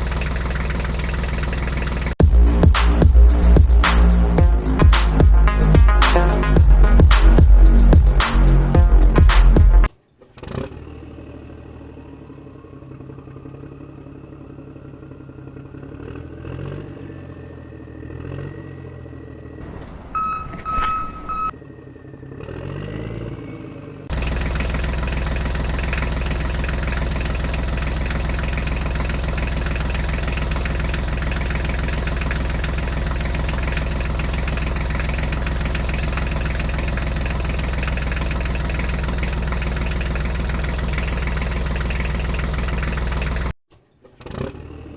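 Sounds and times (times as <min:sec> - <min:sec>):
tractor engine running: 0:00.0 - 0:44.9
short steady beep: 0:20.1 - 0:21.6.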